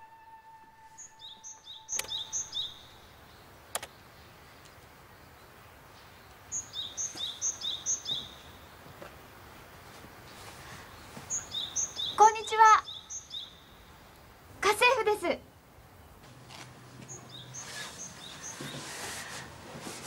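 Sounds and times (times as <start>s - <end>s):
songbird singing two-note phrase: 0.0s - 3.0s
sharp clicks: 3.7s - 3.9s.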